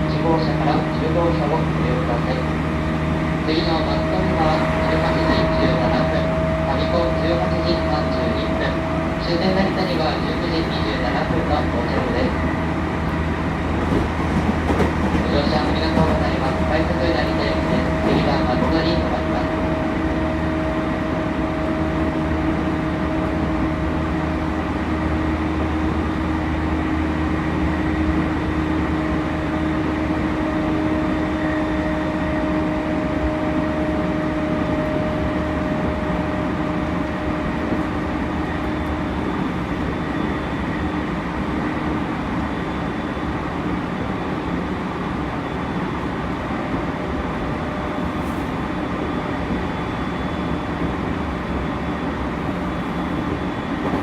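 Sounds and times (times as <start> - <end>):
train motor hum: 0.0 - 42.4
train wheel and rail rumble: 0.0 - 54.0.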